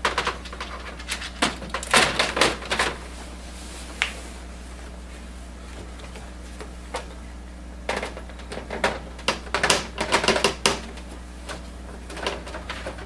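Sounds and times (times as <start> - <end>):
steady low hum: 0.0 - 13.0
plastic tray clicks and rattles: 7.9 - 11.0.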